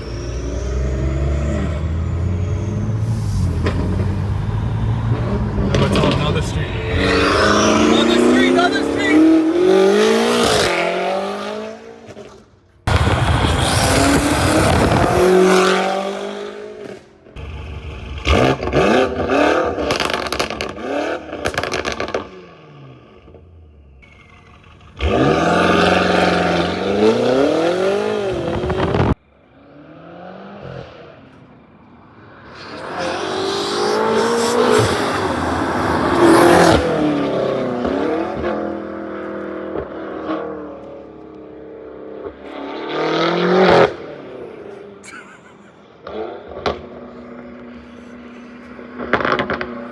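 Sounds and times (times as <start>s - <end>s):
car engine revving hard: 0.0s - 12.3s, 12.9s - 23.3s, 24.8s - 31.1s, 32.4s - 40.8s, 42.2s - 44.8s
exhaust crackles: 12.9s - 15.3s.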